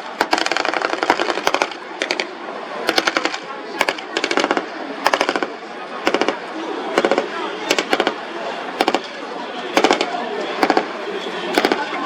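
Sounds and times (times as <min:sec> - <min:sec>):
automatic gunfire bursts: 0:00.2 - 0:02.3, 0:02.9 - 0:06.4, 0:07.0 - 0:08.2, 0:08.8 - 0:09.1, 0:09.8 - 0:10.9, 0:11.5 - 0:12.0.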